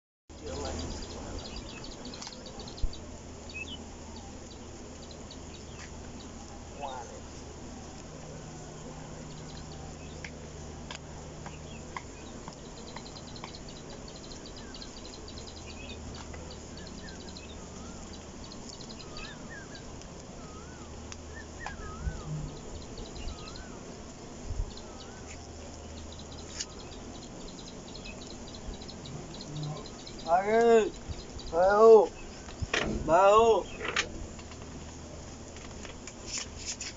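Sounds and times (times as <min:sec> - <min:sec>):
steady low hum: 0:00.3 - 0:36.6
birds high thin notes: 0:08.4 - 0:33.9
short wavering bird whistles: 0:20.4 - 0:22.4.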